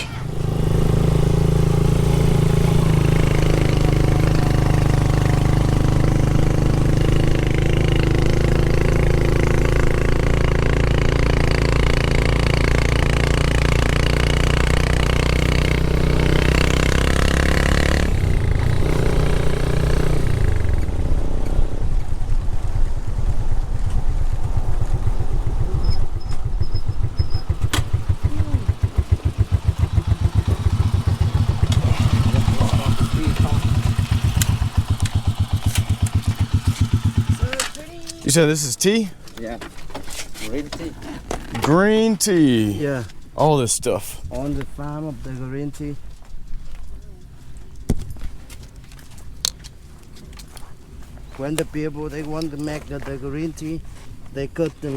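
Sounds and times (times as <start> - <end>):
motorcycle engine running: 0.0 - 38.8
rapid low pulsing: 17.9 - 37.6.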